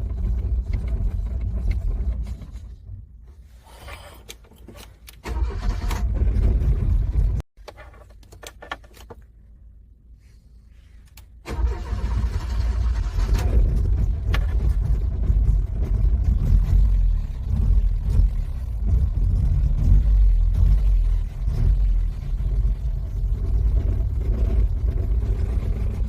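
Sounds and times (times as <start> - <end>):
car engine cranking: 4.2 - 7.4, 11.4 - 26.0.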